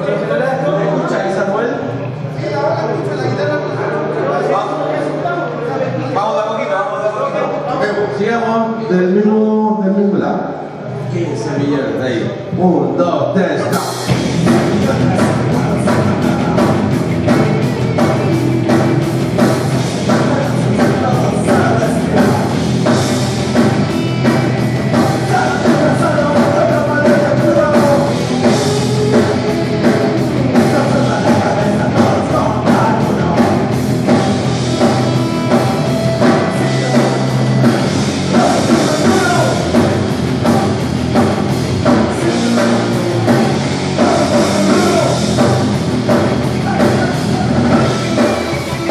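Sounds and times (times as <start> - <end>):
punk rock band playing live: 13.6 - 48.9
person singing: 13.7 - 23.1, 23.8 - 40.8, 41.9 - 45.6
drum kit fast beat: 13.7 - 48.9.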